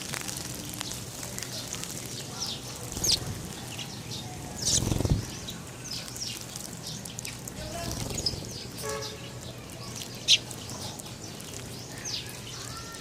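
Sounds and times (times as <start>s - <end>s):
small birds chirping: 0.0s - 13.0s
wing flapping: 2.8s - 5.6s, 7.5s - 8.7s.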